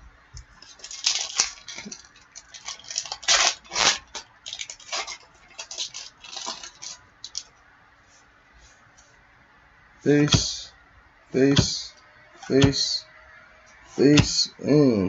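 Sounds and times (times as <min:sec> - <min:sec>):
card pack crinkling and rustling: 0:00.6 - 0:07.5.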